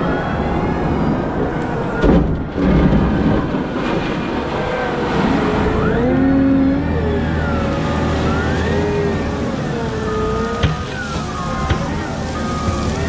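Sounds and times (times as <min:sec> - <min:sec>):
wheel loader engine whining: 0:00.0 - 0:13.0
loud rumbling thud: 0:01.9 - 0:04.7.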